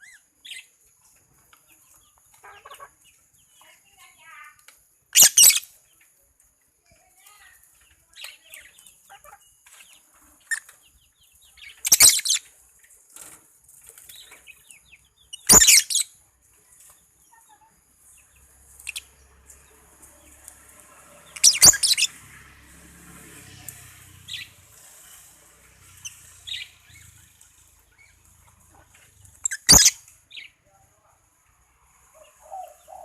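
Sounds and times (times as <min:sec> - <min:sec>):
bird shrill screeches: 0:21.4 - 0:22.1, 0:29.4 - 0:30.0.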